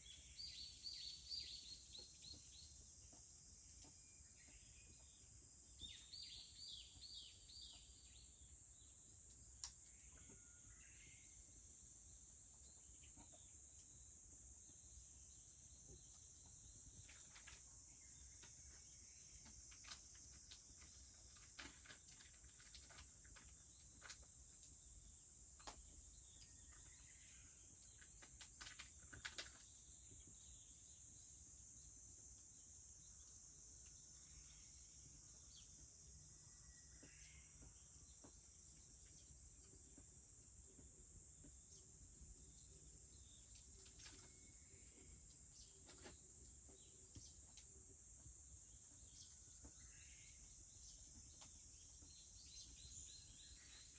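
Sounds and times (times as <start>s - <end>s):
rural background noise: 0.0s - 53.9s
wood fire crackling: 16.0s - 30.5s.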